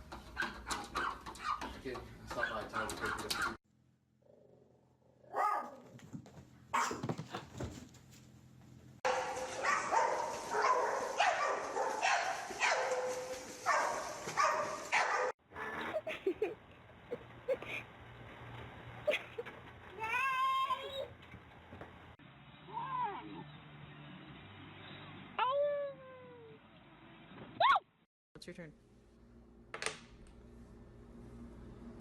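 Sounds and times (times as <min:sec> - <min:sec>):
dog barking and yelping: 0:05.3 - 0:05.9, 0:06.8 - 0:07.2, 0:09.1 - 0:16.5.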